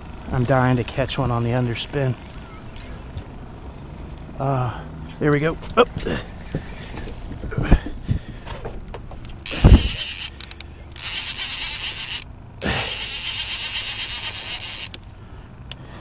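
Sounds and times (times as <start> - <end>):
fishing reel whirring: 9.4 - 15.0.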